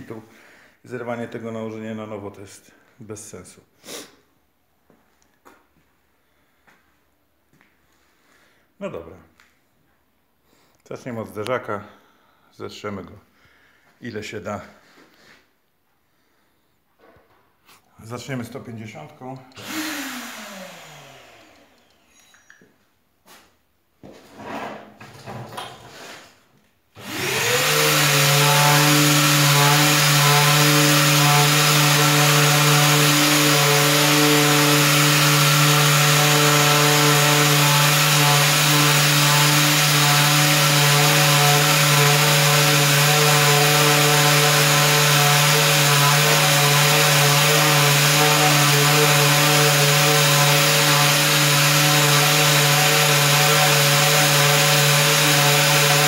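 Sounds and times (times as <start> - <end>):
power sander running: 19.5 - 22.0, 27.0 - 56.0.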